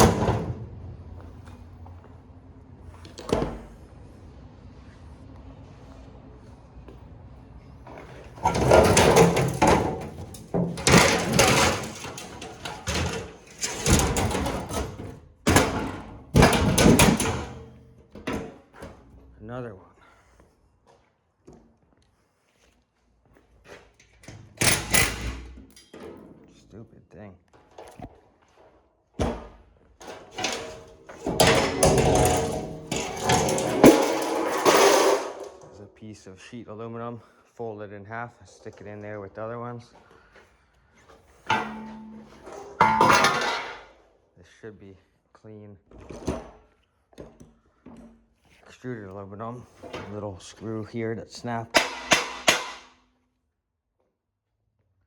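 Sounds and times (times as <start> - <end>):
parts scraping and rattling: 0.0 - 2.0, 7.7 - 19.2, 23.7 - 26.5, 27.5 - 35.9, 41.0 - 44.1, 49.6 - 53.0.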